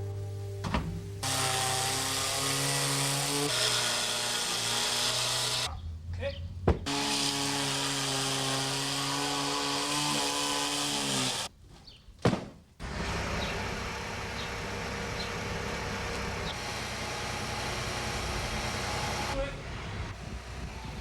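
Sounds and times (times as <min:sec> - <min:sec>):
low machinery rumble: 0:12.8 - 0:21.0.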